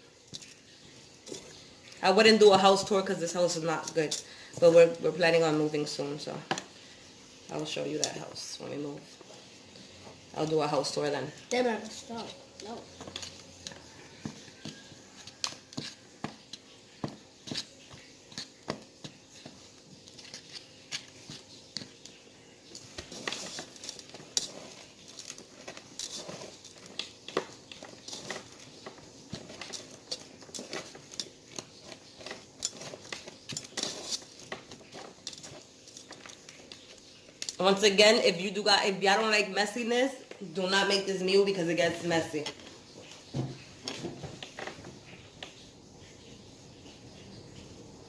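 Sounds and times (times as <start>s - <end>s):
crumbs crinkling and crunching: 9.2s - 37.6s.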